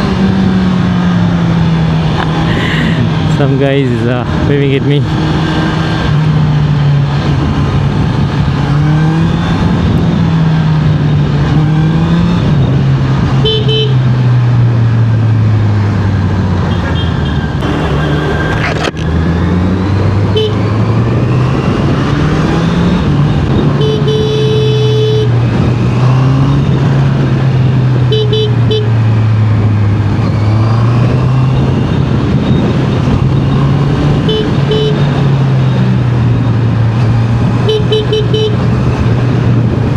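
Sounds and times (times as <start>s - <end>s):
motorcycle engine revving: 0.0s - 39.9s
rushing wind noise: 0.0s - 39.9s
vehicle horns tooting: 13.4s - 14.1s, 16.7s - 17.5s, 20.3s - 20.6s, 23.8s - 25.4s, 28.1s - 29.0s, 34.2s - 35.1s, 37.6s - 38.7s.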